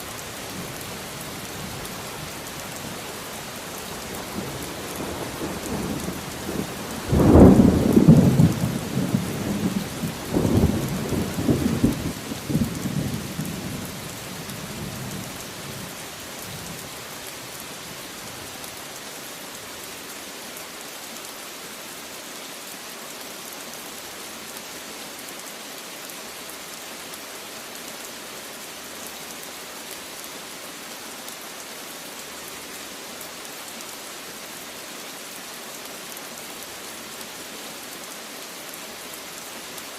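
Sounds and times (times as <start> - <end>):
heavy rain falling: 0.0 - 39.9
thunder rumbling: 5.2 - 13.4.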